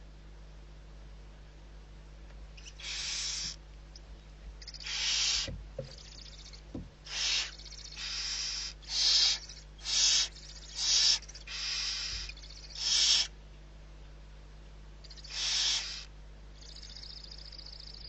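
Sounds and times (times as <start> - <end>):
barn owl hissing calls: 2.6 - 3.6, 4.6 - 13.4, 15.0 - 18.0.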